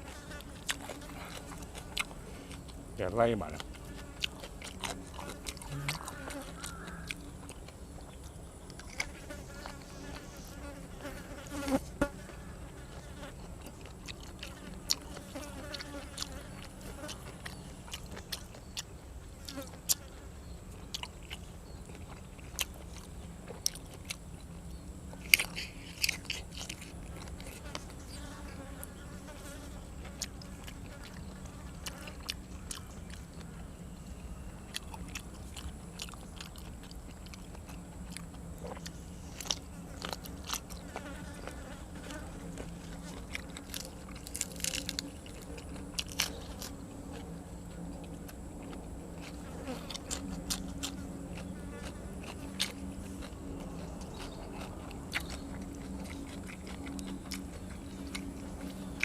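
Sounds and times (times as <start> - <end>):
chewing with crunchy bites: 0.0 - 59.0.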